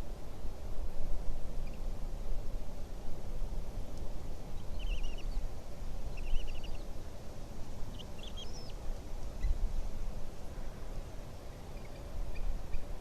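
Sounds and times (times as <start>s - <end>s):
eagle chittering calls: 7.9s - 8.8s.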